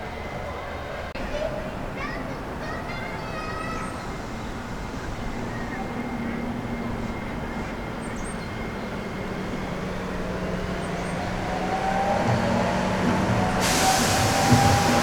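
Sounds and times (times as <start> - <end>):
bright hiss: 13.6 - 15.0.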